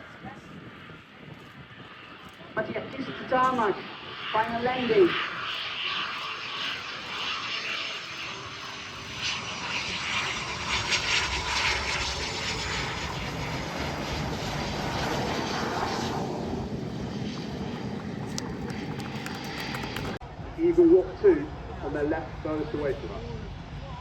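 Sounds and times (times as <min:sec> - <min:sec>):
aircraft engine passing: 0:00.0 - 0:24.0.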